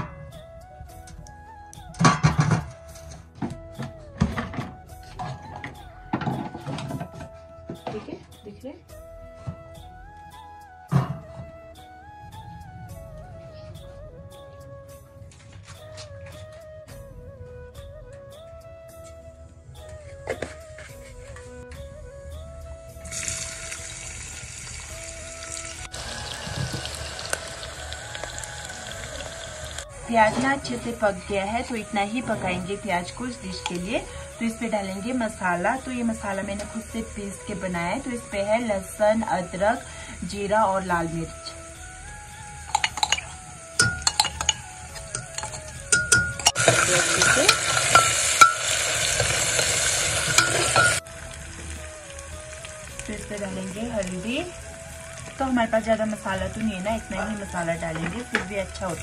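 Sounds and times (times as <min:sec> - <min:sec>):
soft background music: 0:00.0 - 0:59.0
onions sizzling in a pot: 0:23.0 - 0:59.0
spoon clinking on metal pots: 0:42.6 - 0:51.0
metal ladle stirring: 0:42.7 - 0:51.0.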